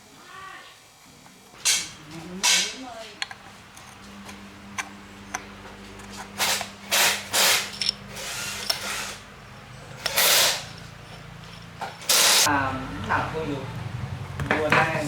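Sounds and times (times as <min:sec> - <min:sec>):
power tool humming: 0:03.2 - 0:09.3
short bursts of hissing: 0:10.1 - 0:10.7, 0:12.1 - 0:12.5.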